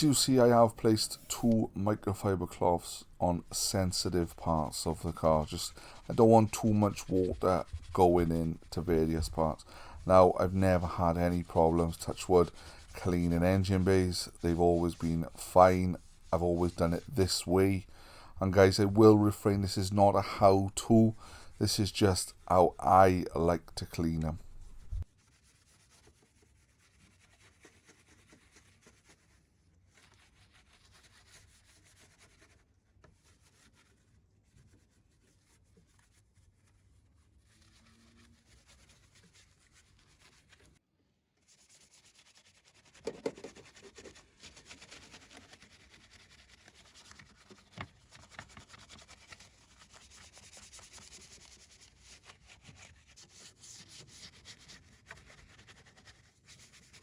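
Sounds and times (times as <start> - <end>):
brushes scrubbing engine parts: 0.0 - 25.1, 41.5 - 57.0.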